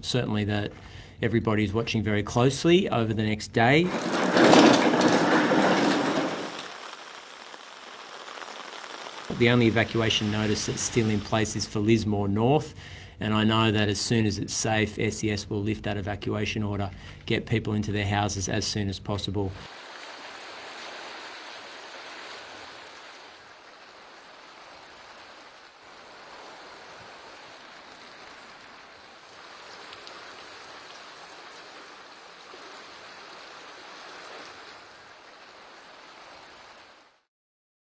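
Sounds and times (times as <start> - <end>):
water rushing: 2.4 - 12.8, 17.9 - 37.2.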